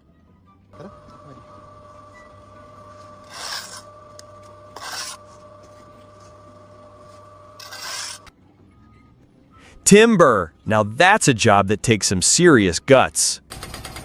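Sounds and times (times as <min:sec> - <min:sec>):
steady hum: 0:00.8 - 0:08.3
short scraping strokes: 0:02.8 - 0:08.3.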